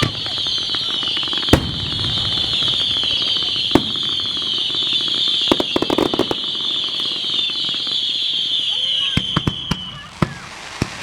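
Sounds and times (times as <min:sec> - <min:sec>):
firework bang: 0:00.0 - 0:07.6
fireworks crackling: 0:00.0 - 0:11.0.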